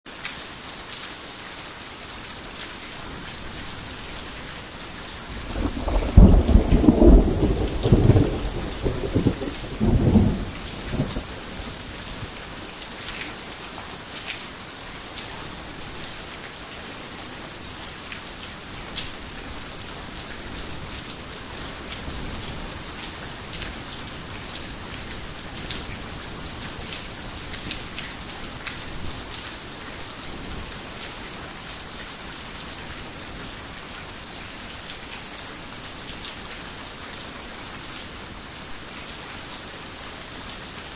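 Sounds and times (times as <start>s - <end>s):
heavy rain falling: 0.1s - 40.9s
thunder rumbling: 5.4s - 11.9s.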